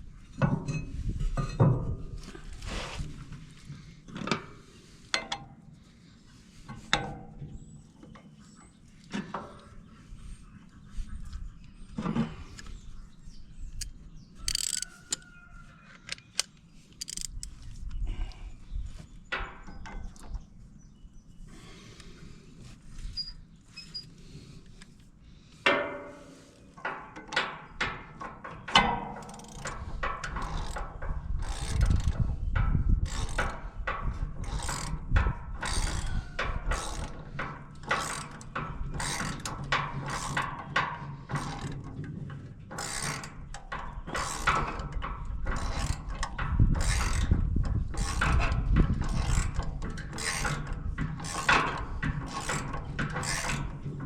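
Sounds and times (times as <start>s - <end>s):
ratchet wrench clicking: 14.5s - 15.2s, 16.1s - 17.5s, 29.2s - 30.8s, 31.4s - 32.2s, 33.0s - 33.4s, 36.7s - 37.1s.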